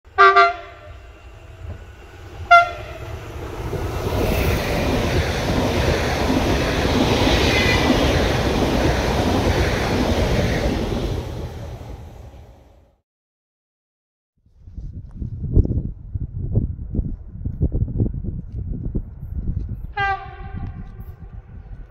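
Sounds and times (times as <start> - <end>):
train horn blasts: 0.1 - 1.8, 2.4 - 3.2, 7.5 - 8.0, 20.0 - 21.2
train running past on rails: 0.1 - 12.9, 19.0 - 21.9.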